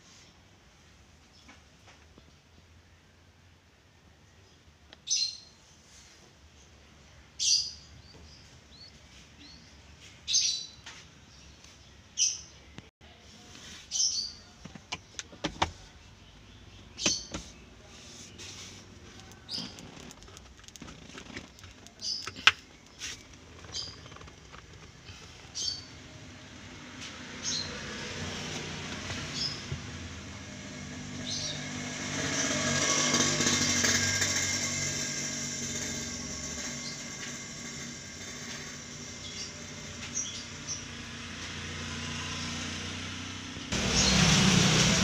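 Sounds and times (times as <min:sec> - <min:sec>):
bird chirping: 0:16.1 - 0:26.0.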